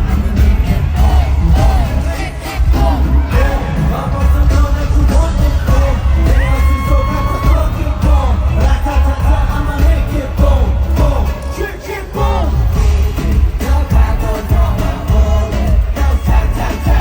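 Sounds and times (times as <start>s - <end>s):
heavy bass beat: 0.0s - 17.0s
man singing: 0.0s - 17.0s.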